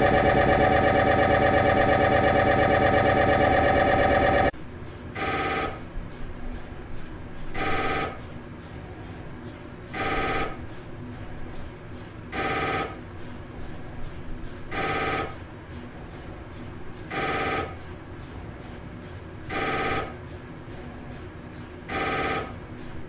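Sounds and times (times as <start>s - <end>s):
telephone ringtone trilling: 0.0s - 4.5s.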